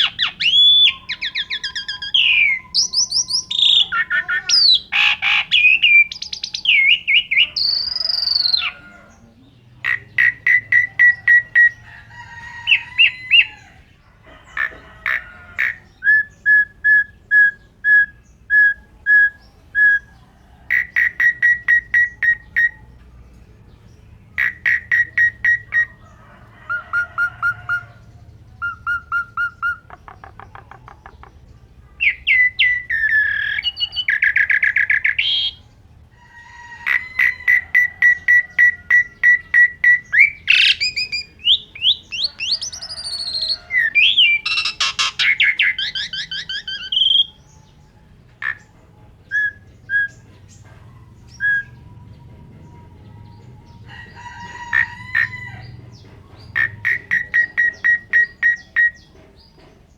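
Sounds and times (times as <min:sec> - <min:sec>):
starling singing: 0:00.0 - 0:59.9.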